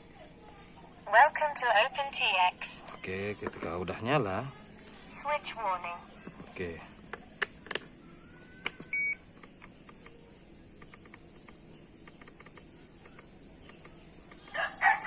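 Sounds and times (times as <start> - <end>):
insects chirring: 0.0 - 15.0
rooster crowing: 14.4 - 15.0.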